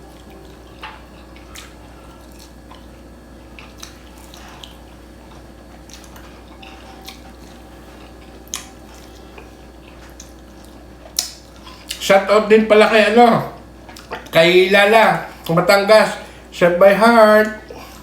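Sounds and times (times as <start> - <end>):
wet chewing: 0.0 - 14.5, 15.2 - 16.4
steady low hum: 0.0 - 18.0.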